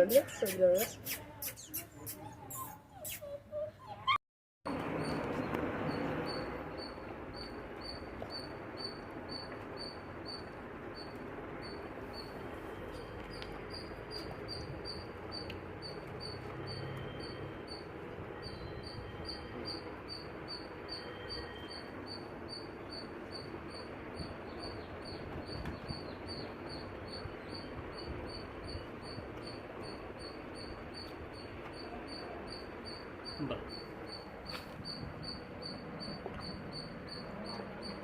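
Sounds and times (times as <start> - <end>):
cricket chirping: 5.0 - 38.0.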